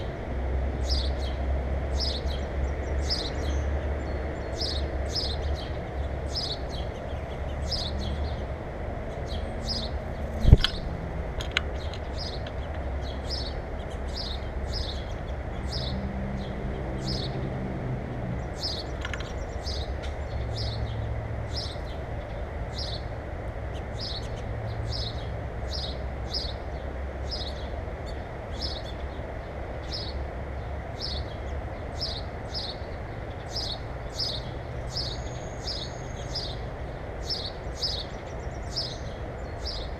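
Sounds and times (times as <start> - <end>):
small bird chirping: 9.1 - 11.0.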